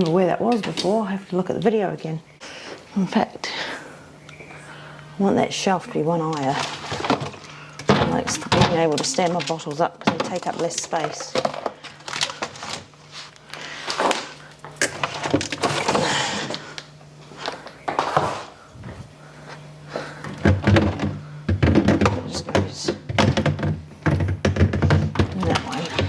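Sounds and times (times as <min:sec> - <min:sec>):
fridge shelves and bottles clattering: 0:05.4 - 0:16.8, 0:20.0 - 0:26.0.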